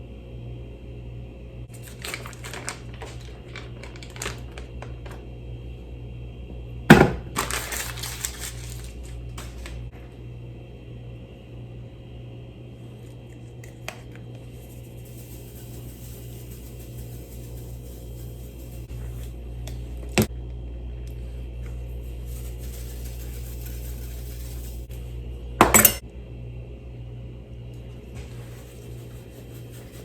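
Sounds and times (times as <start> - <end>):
low electrical hum: 0.0 - 30.0
crinkling handling noises: 1.7 - 5.2, 7.3 - 10.0.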